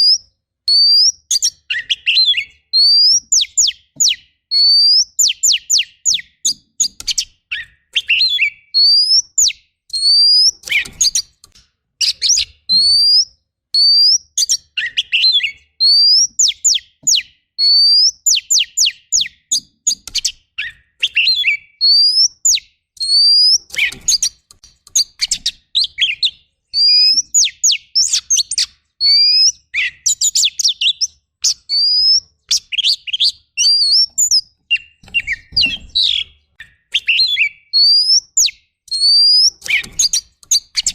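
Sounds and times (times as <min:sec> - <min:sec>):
bird singing varied song: 0:00.0 - 0:40.9.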